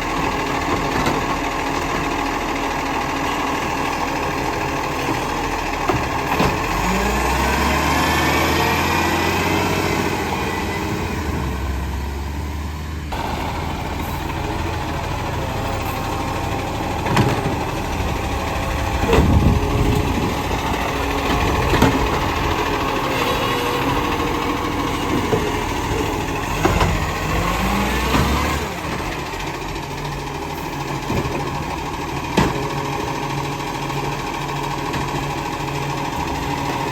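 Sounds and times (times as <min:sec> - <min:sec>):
garbage truck engine revving: 0:00.0 - 0:36.9
sharp knocks and clanks: 0:04.9 - 0:06.9, 0:17.0 - 0:17.9, 0:19.0 - 0:23.1, 0:25.0 - 0:29.2, 0:31.0 - 0:33.0.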